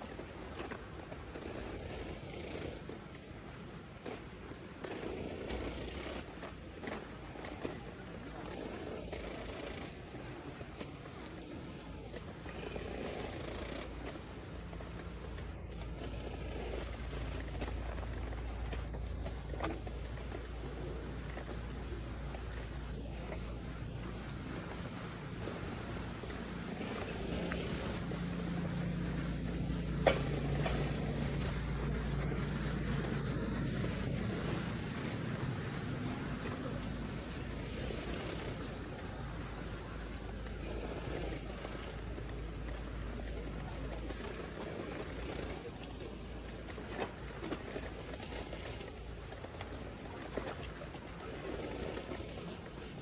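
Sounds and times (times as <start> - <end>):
outdoor background noise: 0.0 - 53.0
motor humming: 11.9 - 46.1.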